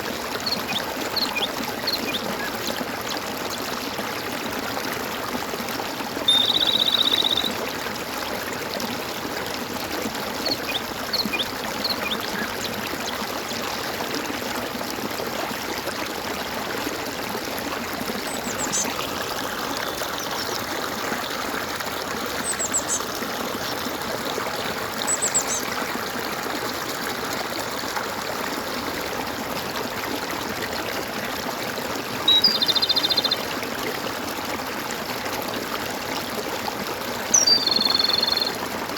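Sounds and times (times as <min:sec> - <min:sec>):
stream water gurgling: 0:00.0 - 0:38.9
faint high bird chirps: 0:06.3 - 0:07.6, 0:22.4 - 0:23.0, 0:32.3 - 0:33.4, 0:37.4 - 0:38.6
rapidly pulsed trilling call: 0:06.3 - 0:07.6, 0:37.4 - 0:38.5.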